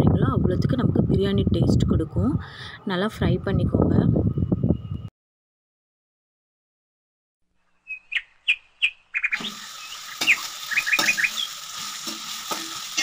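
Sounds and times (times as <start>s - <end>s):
onions sizzling in oil: 9.3s - 13.0s.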